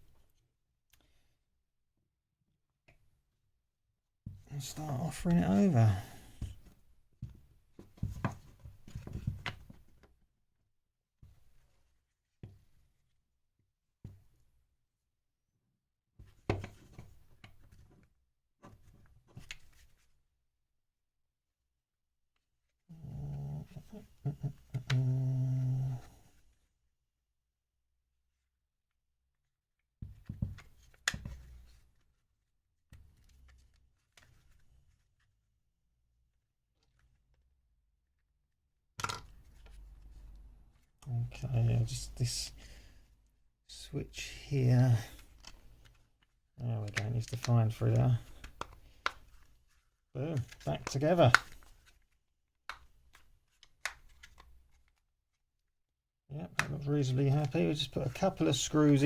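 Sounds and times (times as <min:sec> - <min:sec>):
plastic parts clicking and knocking: 0:39.0 - 0:39.8.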